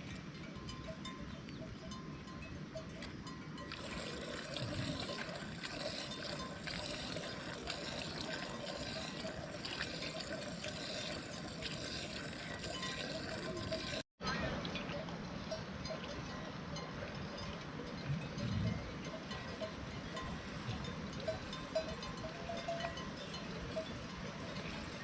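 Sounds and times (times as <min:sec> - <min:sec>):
water running: 0:03.7 - 0:14.1.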